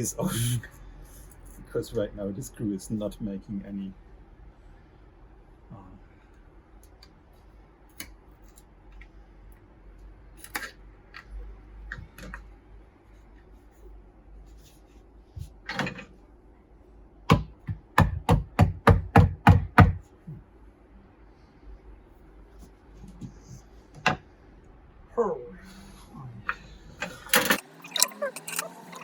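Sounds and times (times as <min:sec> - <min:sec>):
sharp knocks on wood: 0:17.3 - 0:20.0.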